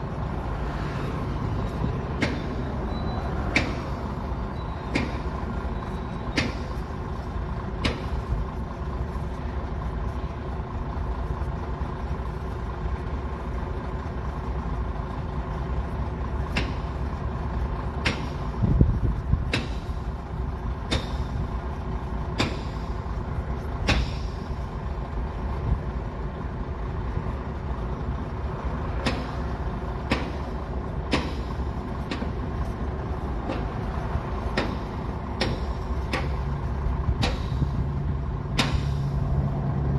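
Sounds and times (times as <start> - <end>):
heavy diesel equipment running: 0.0 - 39.9
metallic clanks and knocks: 34.4 - 36.4.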